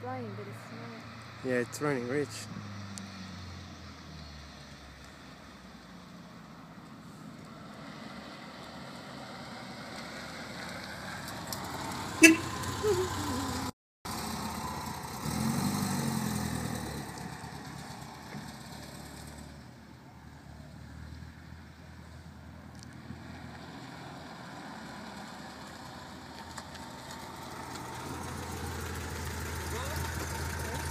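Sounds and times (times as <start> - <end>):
car engine revving and driving off: 0.0 - 30.9.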